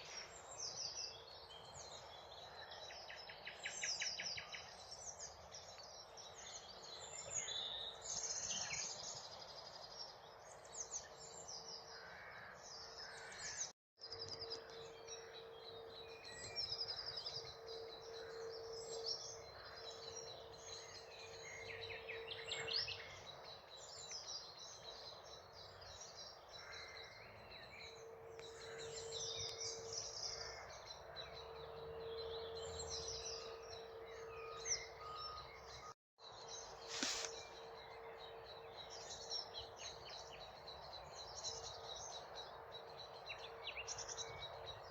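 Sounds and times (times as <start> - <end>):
nightingale singing: 14.0 - 44.9
steady low hum: 14.3 - 35.9
other birds calling: 36.6 - 44.8.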